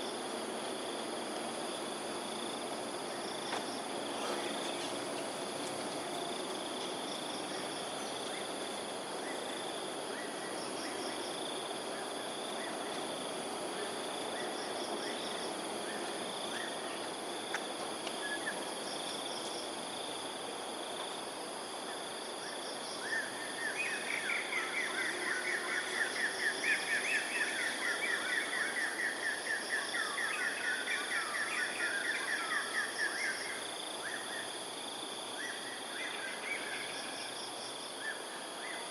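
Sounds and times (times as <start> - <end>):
high insect drone: 0.0 - 38.9.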